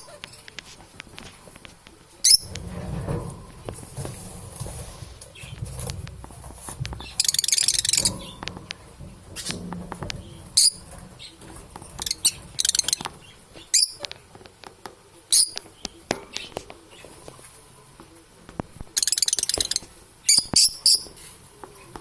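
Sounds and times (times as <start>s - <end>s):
budgerigars chirping: 12.0s - 14.1s, 19.0s - 21.1s.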